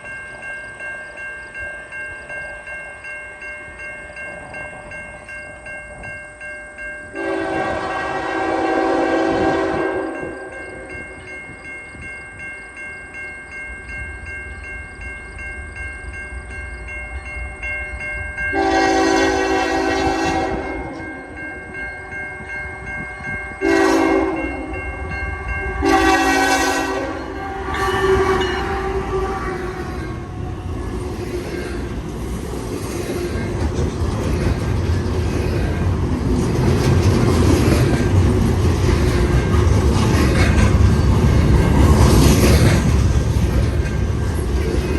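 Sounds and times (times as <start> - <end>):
train rumble: 0.0 - 44.9
locomotive horn blasts: 7.2 - 10.5, 18.5 - 21.1, 23.6 - 30.5.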